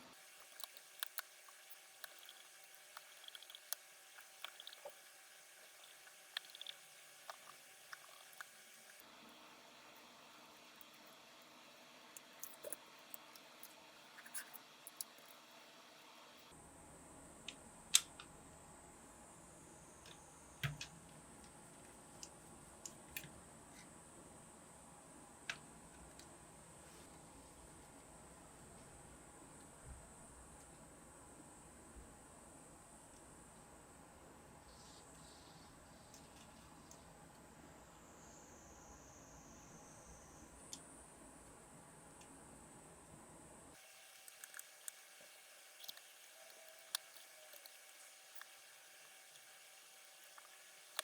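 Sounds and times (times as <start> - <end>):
faint steady hiss: 0.0 - 51.0
small parts clicking and tapping: 0.2 - 9.0, 12.1 - 15.4, 44.1 - 51.0.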